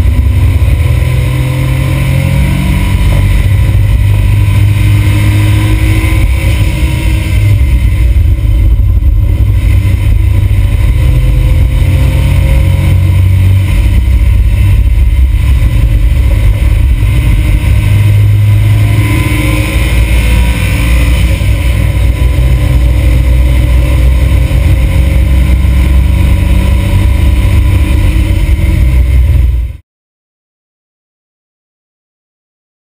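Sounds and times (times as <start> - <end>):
car engine running hard: 0.0 - 29.8
wind and road noise: 0.0 - 29.8.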